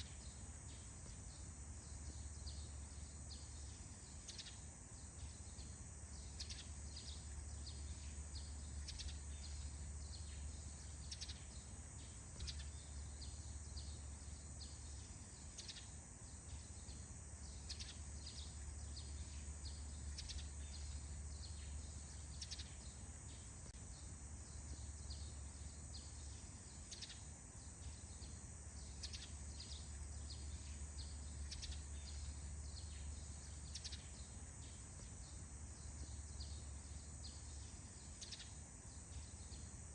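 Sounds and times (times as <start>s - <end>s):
songbirds chirping: 0.0s - 39.9s
steady high hiss: 0.0s - 39.9s.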